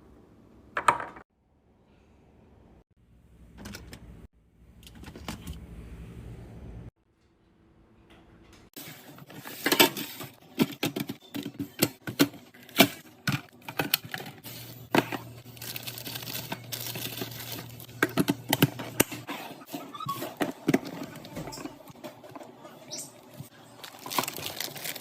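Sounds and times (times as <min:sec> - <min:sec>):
food containers clicking and knocking: 0:09.3 - 0:19.3, 0:20.1 - 0:22.5
packaging rustling: 0:12.6 - 0:18.6, 0:23.8 - 0:25.0.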